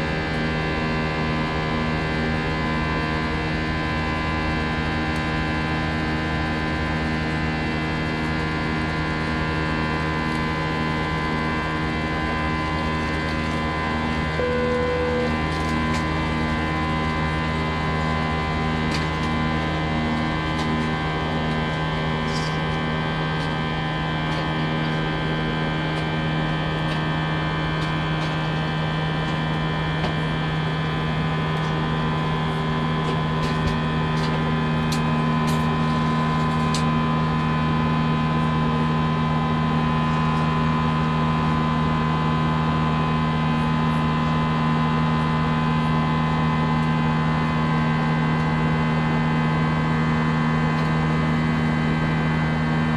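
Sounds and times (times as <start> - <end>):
aircraft cabin drone: 12.6 - 22.8
brief extra tone: 14.4 - 15.6.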